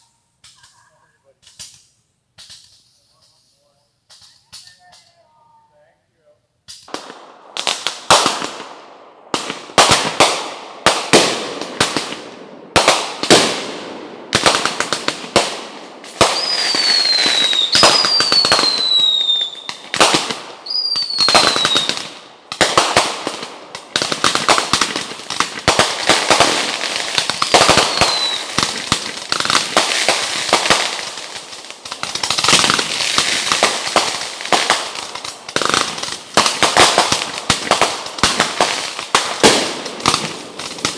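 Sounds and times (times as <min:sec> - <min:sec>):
fireworks bangs and crackle: 0:00.0 - 0:05.2, 0:06.7 - 0:40.9
falling firework whistles: 0:16.2 - 0:22.0, 0:27.4 - 0:28.7.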